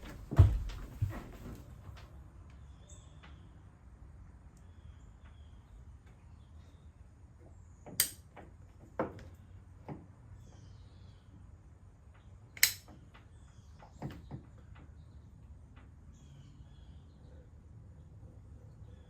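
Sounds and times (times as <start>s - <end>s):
low steady background noise: 0.0s - 19.0s
sharp knocks and clicks: 7.8s - 10.2s.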